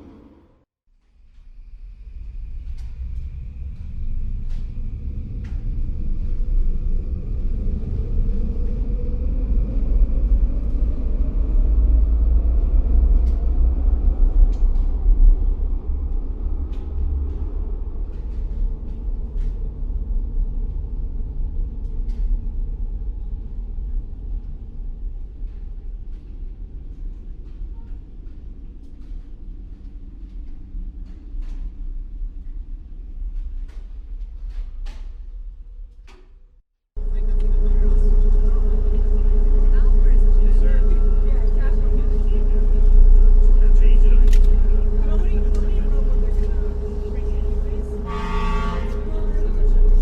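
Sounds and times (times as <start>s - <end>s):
heavy vehicle rumble passing: 37.0s - 50.0s
street traffic: 37.0s - 50.0s.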